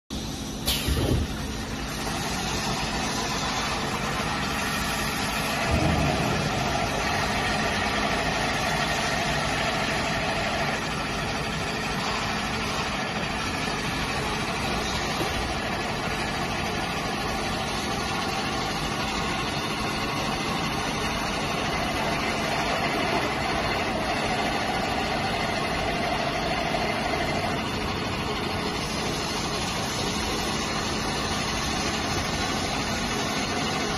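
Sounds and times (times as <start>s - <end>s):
pipe perforating machine drone: 0.1s - 33.9s
machine knock: 5.5s - 9.2s.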